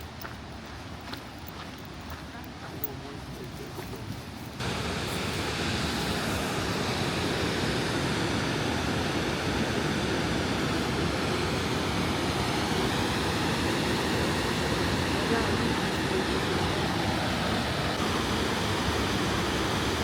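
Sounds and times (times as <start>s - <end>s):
waterfall rushing water: 4.6s - 20.0s.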